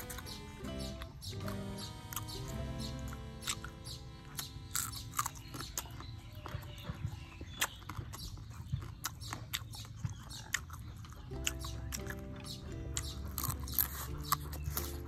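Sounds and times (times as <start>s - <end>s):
crunchy chewing: 0.0s - 15.0s
wet mouth clicks: 7.5s - 15.0s.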